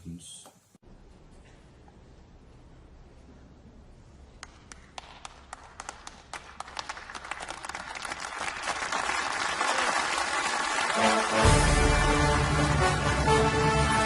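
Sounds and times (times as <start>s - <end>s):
applause: 4.4s - 14.0s.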